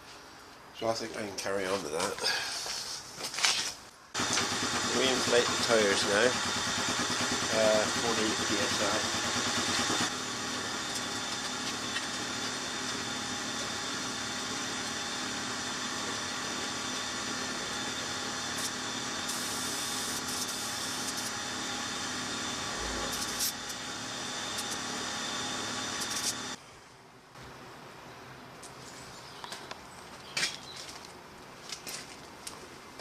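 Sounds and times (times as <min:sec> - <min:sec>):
air compressor humming and hissing: 0:04.2 - 0:26.6.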